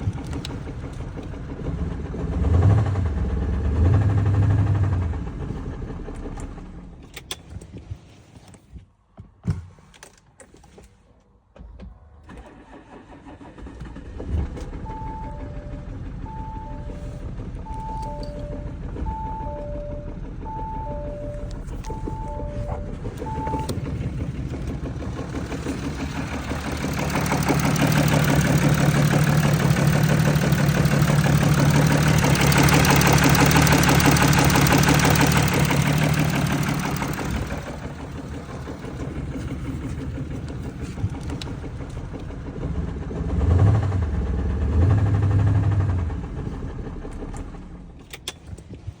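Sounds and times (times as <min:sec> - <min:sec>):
diesel engine revving: 0:00.0 - 0:06.8, 0:12.5 - 0:48.0
short electronic beeps: 0:17.7 - 0:24.0.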